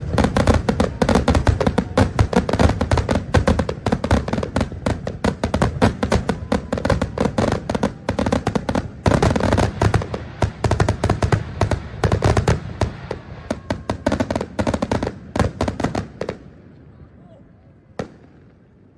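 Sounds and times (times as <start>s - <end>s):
fireworks bangs and crackling: 0.0s - 16.9s, 18.0s - 18.9s.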